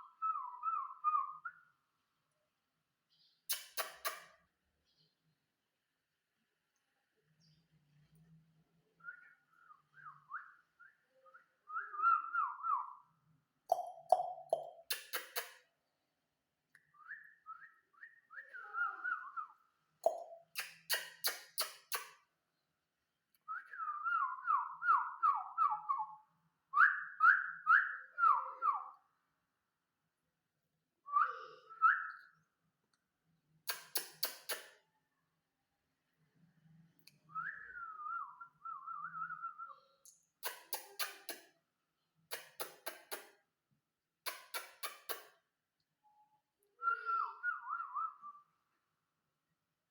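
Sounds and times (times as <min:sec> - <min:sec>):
parrot whistling: 0:46.8 - 0:48.5.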